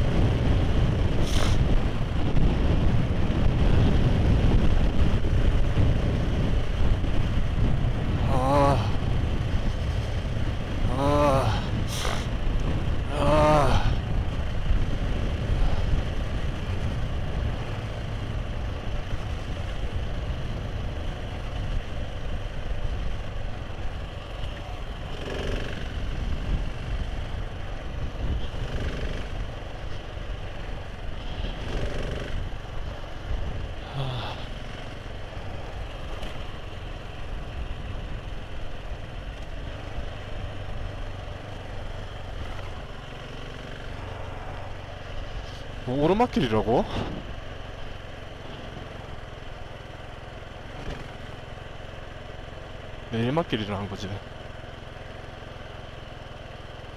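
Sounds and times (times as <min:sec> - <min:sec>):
motorcycle engine rumbling: 0:00.0 - 0:56.9.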